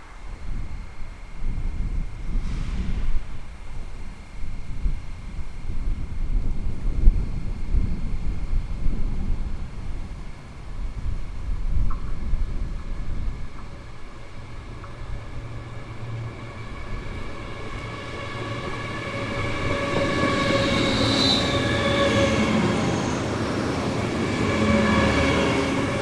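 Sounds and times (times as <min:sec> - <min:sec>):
train passing: 0:07.9 - 0:26.0
high-toned whine: 0:12.1 - 0:26.0.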